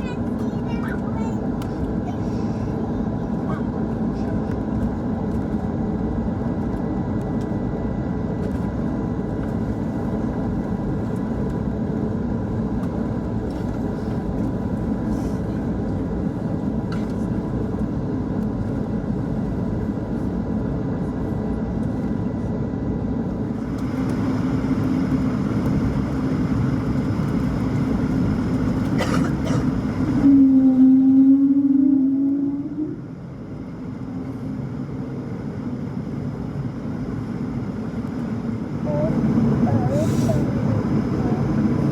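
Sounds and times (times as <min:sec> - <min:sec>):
airplane cabin rumble: 0:00.0 - 0:41.9
low hum: 0:23.1 - 0:41.9.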